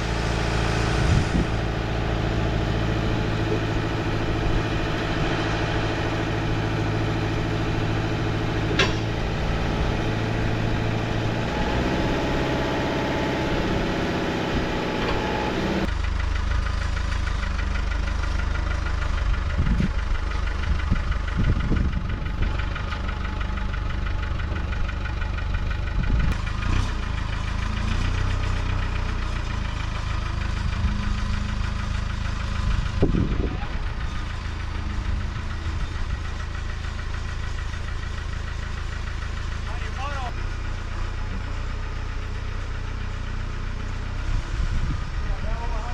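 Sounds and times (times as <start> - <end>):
tractor engine running: 0.0 - 45.9
sharp knocks: 8.8 - 9.2.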